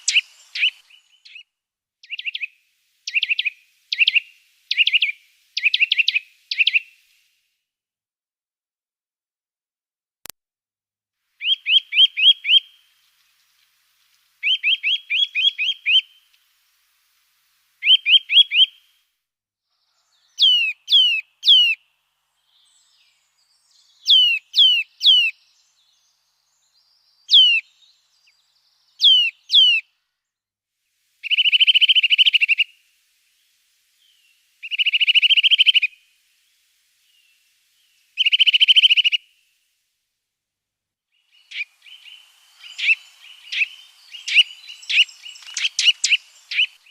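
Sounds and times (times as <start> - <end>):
songbird singing whistles and trills: 0.0 - 7.1, 11.4 - 13.0, 14.4 - 16.4, 17.8 - 18.9, 19.8 - 29.9, 31.2 - 39.5, 41.1 - 46.9.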